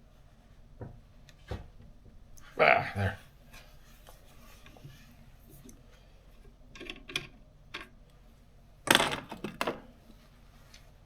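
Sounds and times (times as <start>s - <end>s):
metal parts clattering on workbench: 8.9s - 9.8s.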